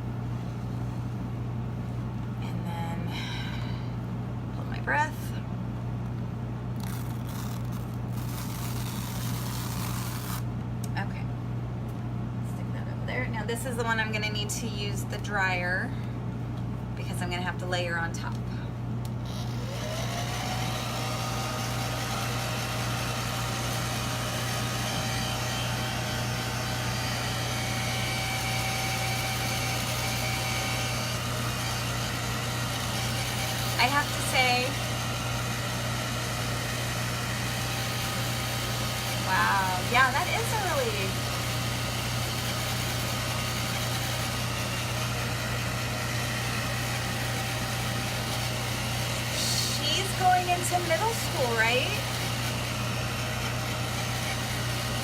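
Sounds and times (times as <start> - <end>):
handheld dryer blowing: 19.3 - 55.0.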